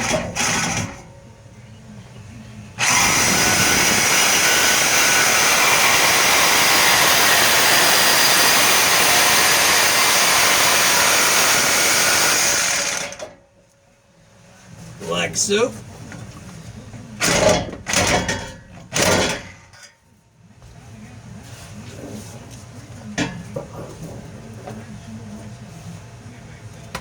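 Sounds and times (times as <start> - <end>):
reciprocating saw cutting metal pipe: 0.0 - 1.0, 2.8 - 13.4.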